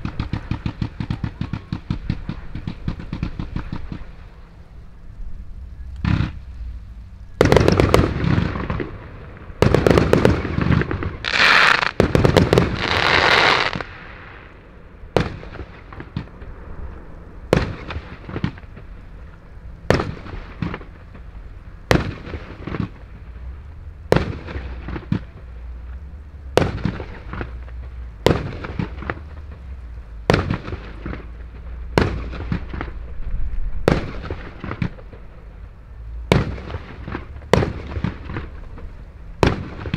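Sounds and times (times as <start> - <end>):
fireworks firing rapid shots: 0.0 - 4.3, 6.0 - 6.4, 7.4 - 14.4, 15.2 - 16.5, 17.5 - 18.9, 19.9 - 23.4, 24.1 - 25.5, 26.5 - 33.1, 33.8 - 35.4, 36.3 - 39.9
fireworks hissing and crackling: 0.0 - 39.9.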